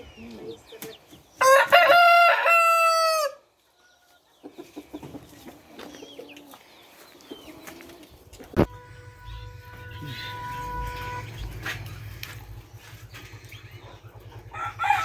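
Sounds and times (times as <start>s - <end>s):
chickens clucking and scratching: 0.0s - 8.7s, 11.4s - 15.0s
rooster crowing: 1.4s - 3.4s, 14.4s - 15.0s.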